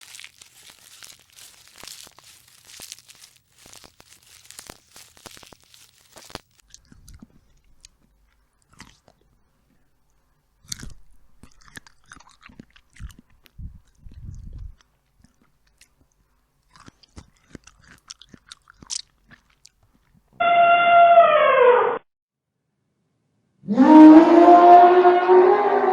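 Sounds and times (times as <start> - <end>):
animal crunching food: 0.0 - 20.3
loud falling animal call: 20.4 - 22.0.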